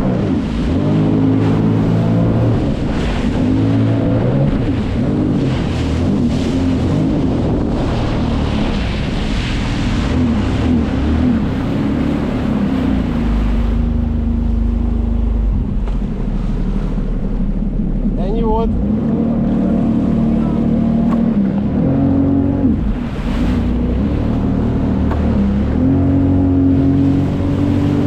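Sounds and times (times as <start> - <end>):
jet ski engine: 0.0 - 28.0
rushing water: 0.0 - 28.0
wind on microphone: 0.0 - 28.0.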